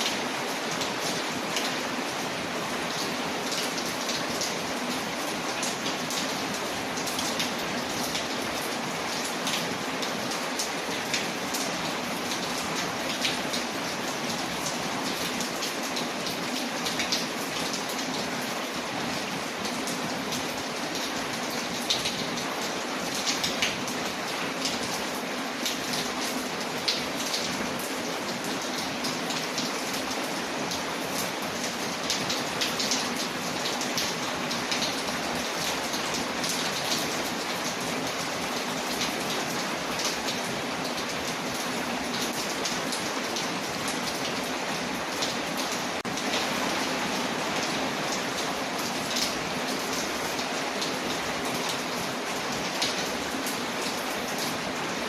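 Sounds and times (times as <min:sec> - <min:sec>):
rain on a window: 0:00.0 - 0:55.0.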